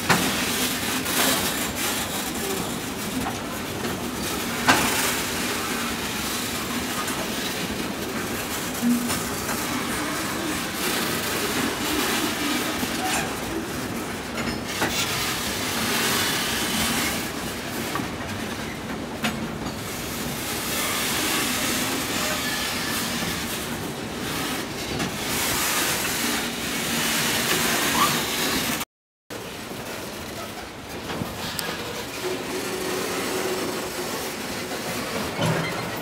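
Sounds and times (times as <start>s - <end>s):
steel wheels on rails: 0.0s - 36.0s
faint wheel squeal: 27.7s - 28.6s.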